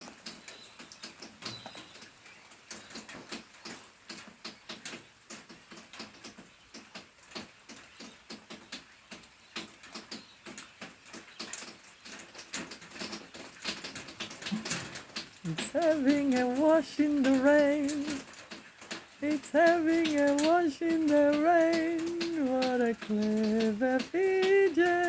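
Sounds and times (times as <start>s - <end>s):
rain pattering on hard surface: 0.0s - 25.0s.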